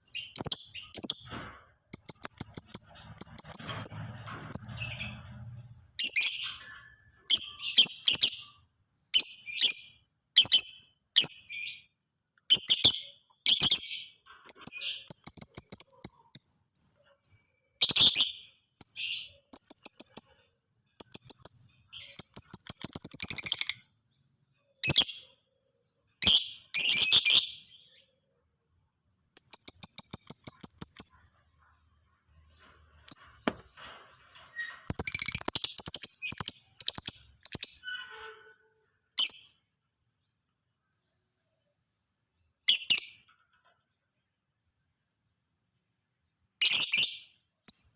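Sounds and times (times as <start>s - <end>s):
bird chirping and chattering: 0.0s - 5.2s, 7.3s - 24.0s, 29.3s - 33.5s, 34.6s - 38.0s.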